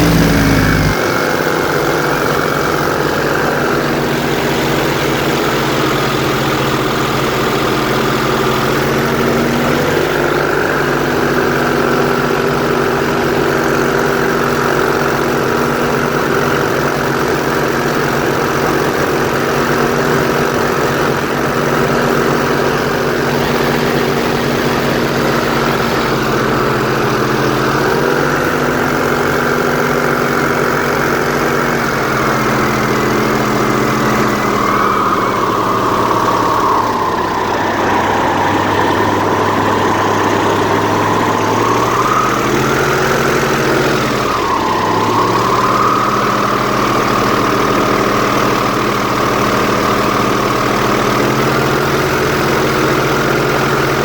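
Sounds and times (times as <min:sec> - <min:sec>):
airboat engine and propeller droning: 0:00.0 - 0:11.8.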